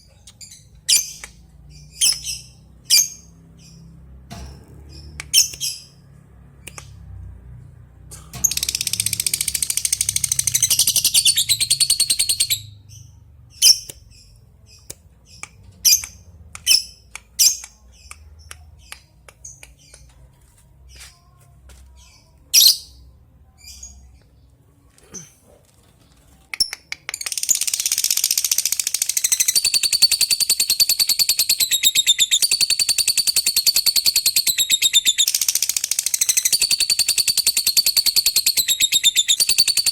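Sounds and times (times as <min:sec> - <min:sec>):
lovebird sharp chirps: 0:05.0 - 0:06.0, 0:08.4 - 0:18.1, 0:26.6 - 0:39.9
lovebird chattering trill: 0:08.4 - 0:12.7, 0:27.2 - 0:39.9.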